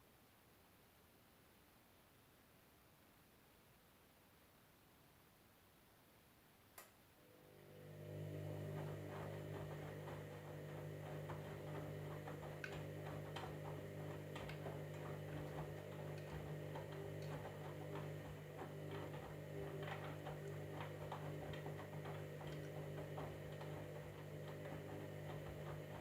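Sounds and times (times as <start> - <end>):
washing machine motor hum: 7.2 - 26.0.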